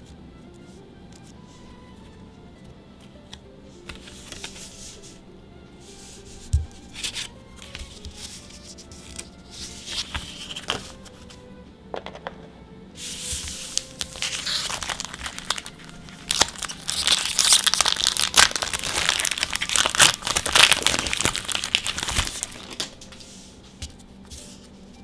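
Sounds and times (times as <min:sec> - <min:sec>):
wrapper crinkling and tearing: 0:07.0 - 0:11.1, 0:13.1 - 0:23.3.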